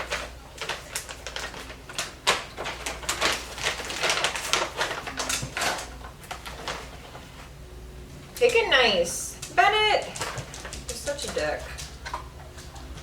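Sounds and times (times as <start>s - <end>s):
dog claws clicking and tapping: 9.4s - 13.0s.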